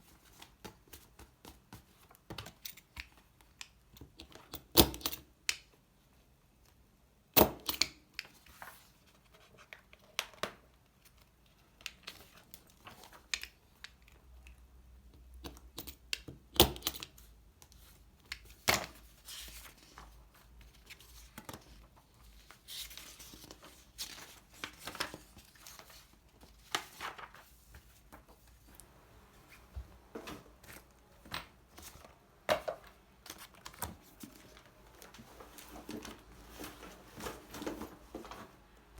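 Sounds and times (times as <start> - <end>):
paper rustling: 8.3 - 9.8, 17.8 - 38.6.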